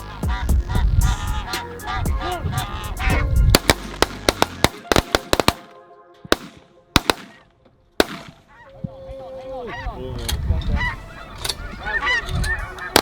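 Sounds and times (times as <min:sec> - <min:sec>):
geese honking: 0:00.0 - 0:05.9, 0:08.3 - 0:08.9, 0:09.5 - 0:13.0
background music: 0:00.0 - 0:08.5
shotgun shots: 0:03.6 - 0:08.5.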